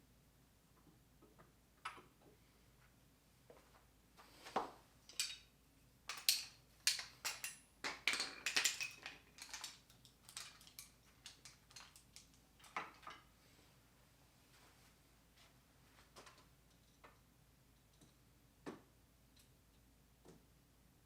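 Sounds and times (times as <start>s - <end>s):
metal tools clinking: 5.1s - 5.5s, 6.1s - 13.2s.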